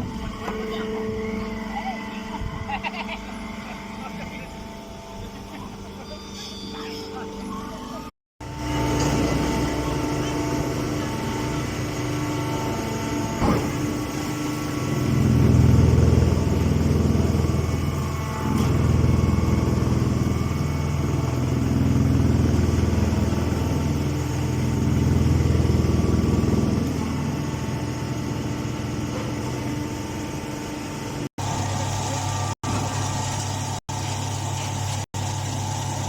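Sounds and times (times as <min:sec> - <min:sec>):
engine running: 0:08.0 - 0:36.0.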